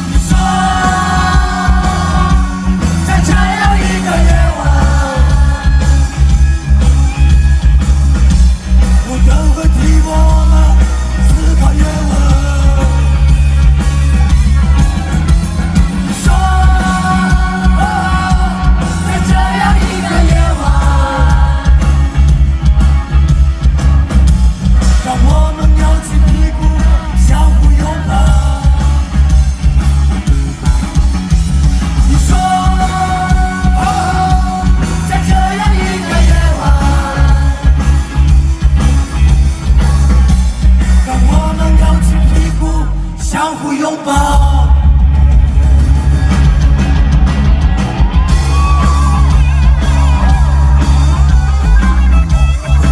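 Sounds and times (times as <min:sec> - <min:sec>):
person singing: 0:00.0 - 0:06.3, 0:09.0 - 0:13.4, 0:16.1 - 0:22.2, 0:32.0 - 0:38.0
drums: 0:00.0 - 0:52.9
heavy bass: 0:00.0 - 0:52.9
live rock band playing: 0:00.0 - 0:52.9.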